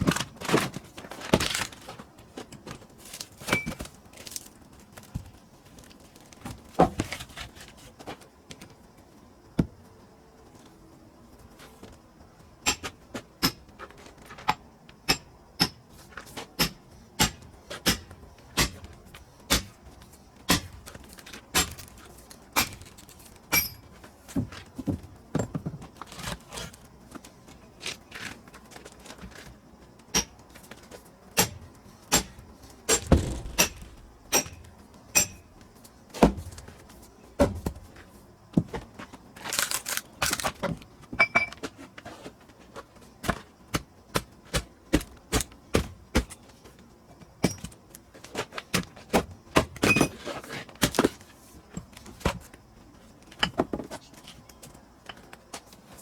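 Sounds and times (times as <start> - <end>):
wooden knocks of firewood splitting: 0.0 - 7.7, 12.6 - 26.7, 31.4 - 36.8, 37.4 - 37.8
heavy deep thuds: 32.9 - 35.5
wood clatter: 32.9 - 35.5.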